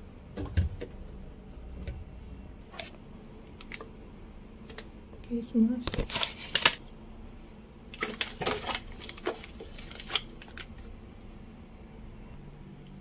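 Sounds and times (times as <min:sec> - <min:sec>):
plastic packaging rustling: 0:02.6 - 0:03.9, 0:05.8 - 0:06.9, 0:07.9 - 0:10.9.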